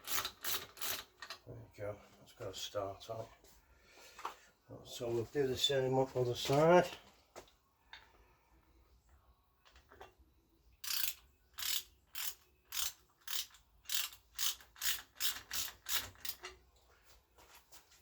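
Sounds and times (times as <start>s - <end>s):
hand ratchet clicking: 0.0s - 1.4s, 10.8s - 16.6s.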